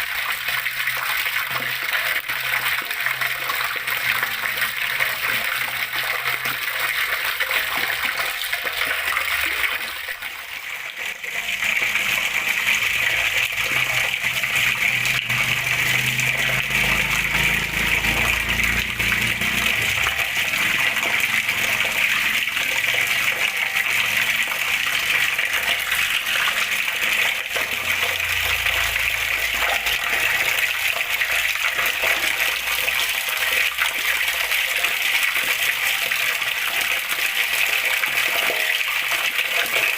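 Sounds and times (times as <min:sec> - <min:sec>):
water flowing and splashing: 0:00.0 - 0:39.9.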